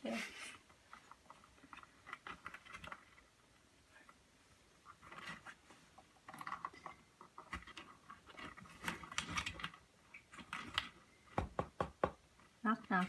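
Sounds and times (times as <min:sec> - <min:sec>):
sharp knocks: 0:11.4 - 0:12.2.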